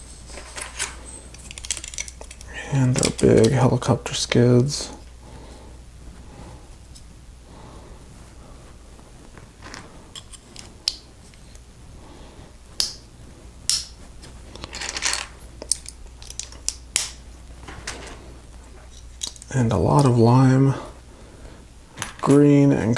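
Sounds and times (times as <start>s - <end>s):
plastic bricks rustling: 14.5s - 16.7s.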